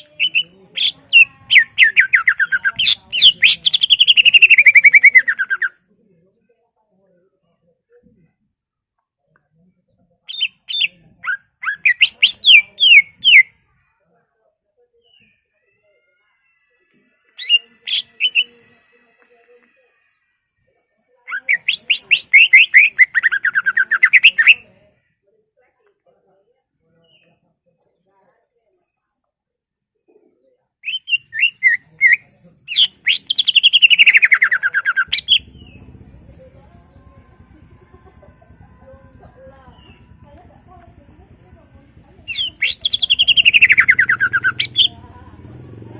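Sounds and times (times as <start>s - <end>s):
bird chirping and trilling: 0.0s - 5.8s, 10.3s - 13.5s, 17.3s - 18.6s, 21.3s - 24.7s, 30.8s - 37.0s, 39.1s - 40.2s, 42.2s - 45.1s
bird singing clear whistles: 30.8s - 35.8s, 42.3s - 44.9s
faint low hum: 34.6s - 45.9s.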